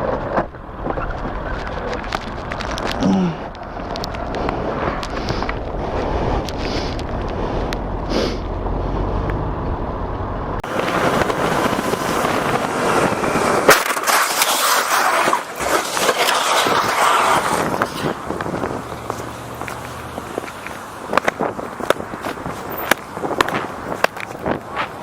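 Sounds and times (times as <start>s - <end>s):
engine and wind rumble: 0.0s - 25.0s
metal scraping on asphalt: 10.6s - 25.0s.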